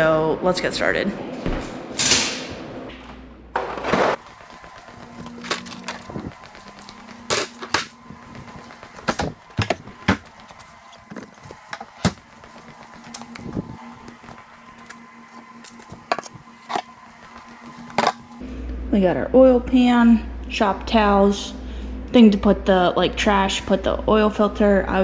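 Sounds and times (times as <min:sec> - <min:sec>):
tools clicking and knocking: 0:04.2 - 0:15.0.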